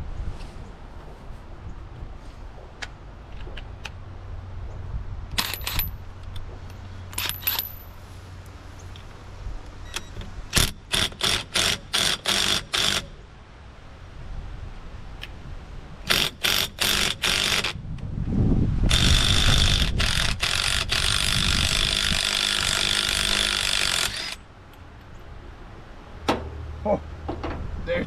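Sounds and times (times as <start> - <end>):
metal hand tools clinking: 7.1 - 8.0.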